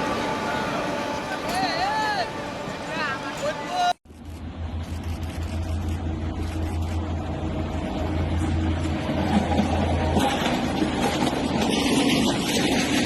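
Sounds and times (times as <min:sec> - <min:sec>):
vehicle low drone: 0:00.0 - 0:13.0
rough rumbling noise: 0:04.1 - 0:13.0.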